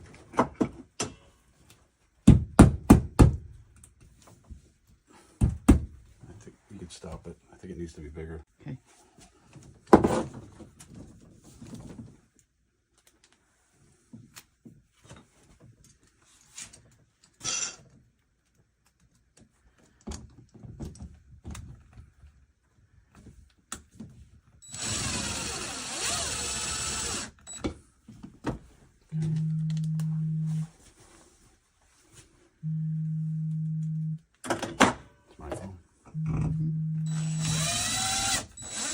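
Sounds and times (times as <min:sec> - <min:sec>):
power drill running: 0:24.6 - 0:27.6, 0:37.1 - 0:38.9
phone vibrating: 0:29.1 - 0:30.7, 0:32.6 - 0:34.2, 0:36.1 - 0:37.2.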